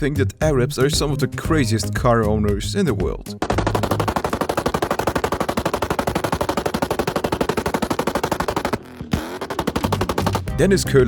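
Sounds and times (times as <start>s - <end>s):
fast rattle of sharp bangs: 3.4s - 10.8s.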